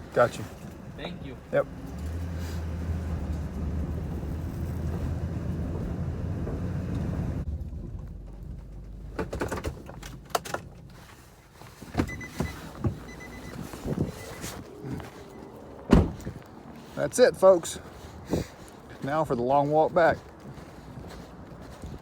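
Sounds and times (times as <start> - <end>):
faint beeping chime: 12.1 - 14.4.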